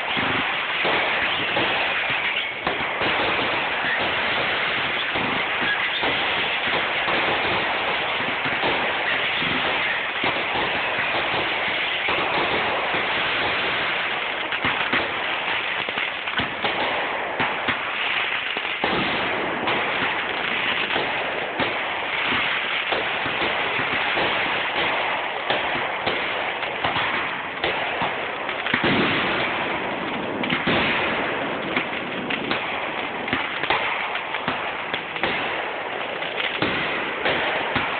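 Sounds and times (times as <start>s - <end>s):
fireworks popping and crackling: 0.0s - 37.9s
loud firework bang: 26.9s - 34.6s.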